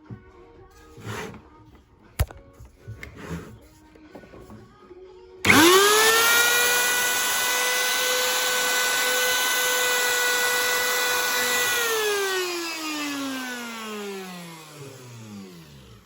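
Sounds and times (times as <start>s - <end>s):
electric router motor whine: 5.5s - 16.0s.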